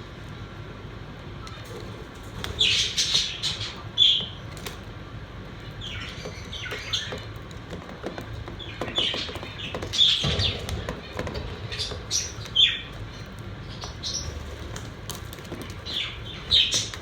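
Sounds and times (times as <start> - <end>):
budgerigars chirping: 2.5 - 4.4, 5.6 - 7.2, 8.6 - 14.6, 15.8 - 17.0.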